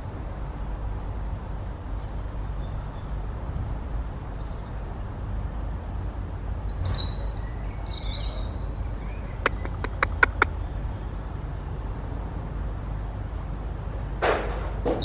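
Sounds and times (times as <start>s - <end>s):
songbird singing: 6.4s - 11.4s, 14.2s - 15.0s
sharp click: 9.5s - 10.5s.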